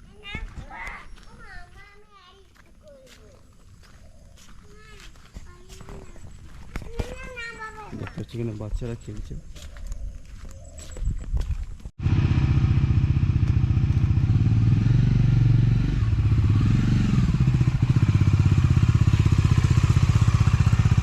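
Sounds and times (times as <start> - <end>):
vehicle engine running: 12.0 - 21.0.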